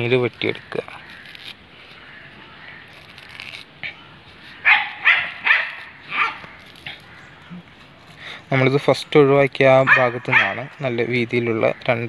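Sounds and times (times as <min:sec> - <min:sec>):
dog barking: 0:04.6 - 0:06.4, 0:09.9 - 0:10.7.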